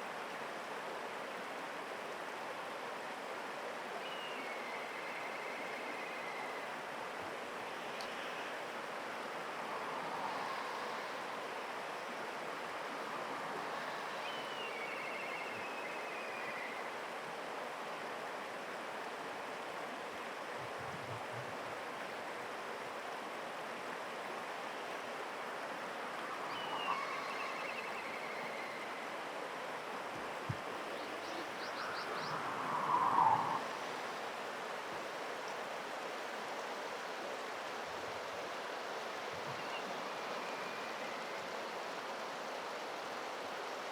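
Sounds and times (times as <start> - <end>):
high descending whistled bird call: 26.4 - 29.0, 31.0 - 33.7
loud low bird call: 31.0 - 33.8.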